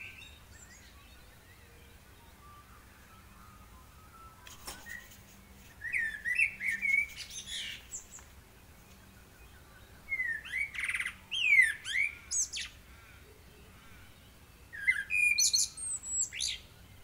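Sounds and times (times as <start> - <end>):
buzzy bird trill: 0.0 - 8.2
bird chirping: 0.0 - 17.0.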